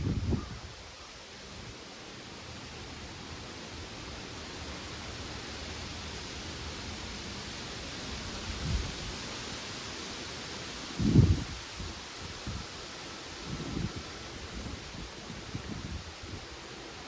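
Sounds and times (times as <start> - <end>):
wind buffeting microphone: 0.0 - 0.8, 8.3 - 9.2, 11.0 - 12.8, 13.4 - 16.6
wind rustling leaves: 0.0 - 17.0.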